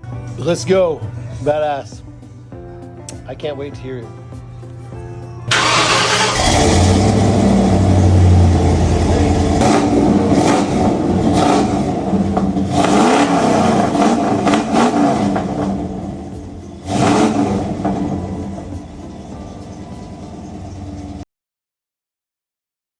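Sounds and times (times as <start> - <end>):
engine idling and revving: 5.5 - 21.2.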